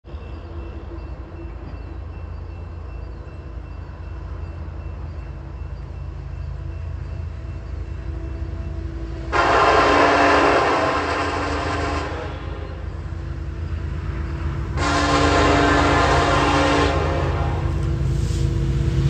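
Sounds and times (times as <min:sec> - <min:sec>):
diesel locomotives rumbling: 0:00.0 - 0:19.0
locomotive horn: 0:09.1 - 0:13.0, 0:14.7 - 0:17.9.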